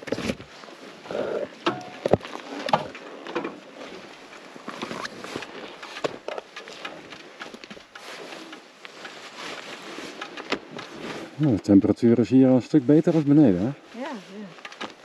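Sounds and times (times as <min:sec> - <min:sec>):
motorcycle knocks and clicks: 0:05.4 - 0:11.0.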